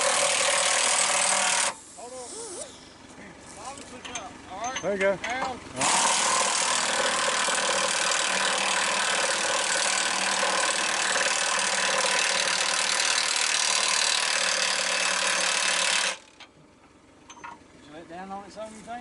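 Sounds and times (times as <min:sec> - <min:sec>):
machine motor running: 0:05.7 - 0:16.4.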